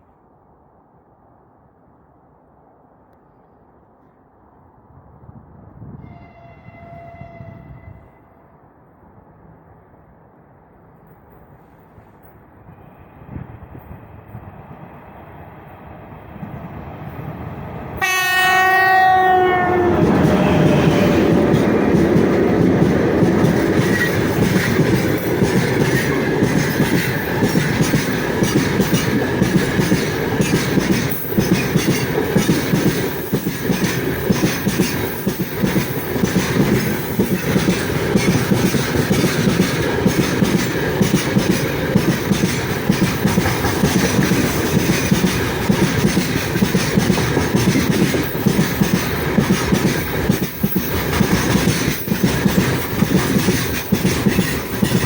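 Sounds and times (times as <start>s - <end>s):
train wheels clattering on track: 11.0s - 55.0s.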